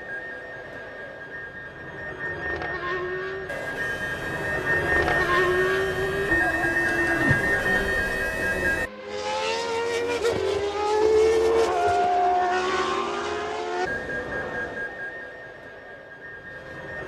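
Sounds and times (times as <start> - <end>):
racing car engine at high revs: 2.3 - 15.1.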